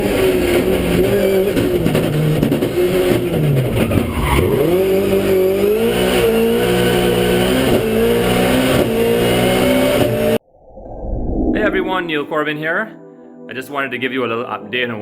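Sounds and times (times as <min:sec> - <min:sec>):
rally car engine revving: 0:00.0 - 0:10.4.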